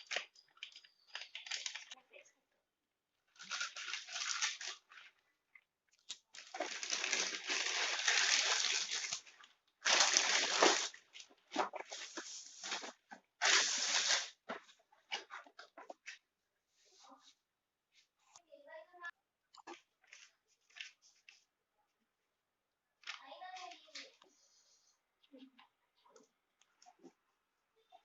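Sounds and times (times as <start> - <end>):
packaging rustling and tearing: 0.0 - 2.0, 3.4 - 5.2, 6.1 - 15.6.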